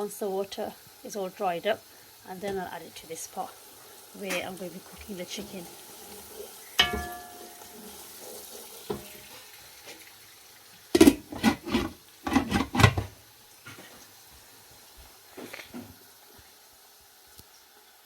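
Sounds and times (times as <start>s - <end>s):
food sizzling: 0.0s - 18.0s
metal lid clanging on pot: 6.8s - 7.8s, 11.0s - 13.1s
cookware clattering: 6.8s - 9.4s, 10.9s - 13.1s.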